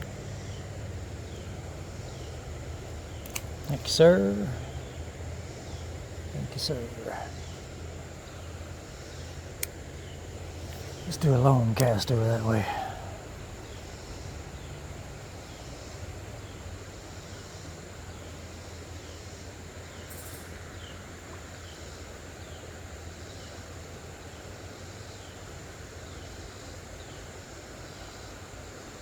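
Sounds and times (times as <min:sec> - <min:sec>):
low steady rumble: 0:00.0 - 0:21.6
high insect drone: 0:00.0 - 0:29.0.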